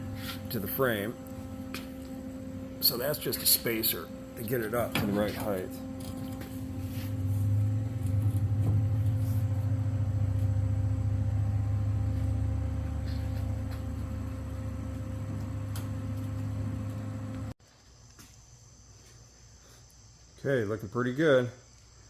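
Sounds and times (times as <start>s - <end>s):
machine humming: 0.0s - 17.6s.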